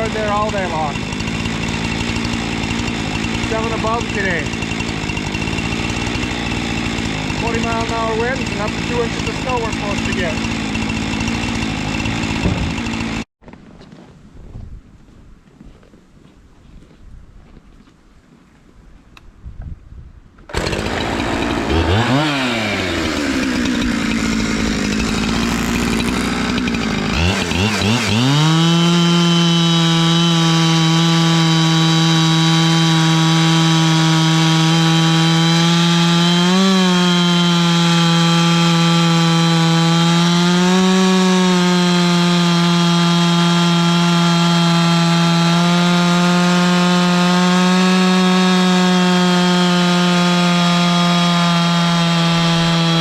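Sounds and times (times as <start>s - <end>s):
chainsaw ripping a log: 0.0s - 13.3s, 20.5s - 53.0s.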